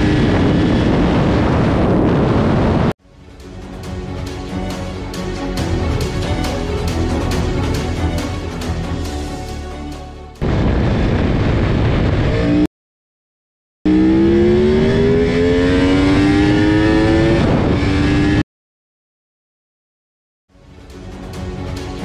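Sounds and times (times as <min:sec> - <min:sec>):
motorcycle accelerating hard: 0:00.0 - 0:02.9, 0:11.9 - 0:12.7, 0:13.9 - 0:18.4
wind rush: 0:00.0 - 0:03.0, 0:10.4 - 0:12.7, 0:14.1 - 0:18.4.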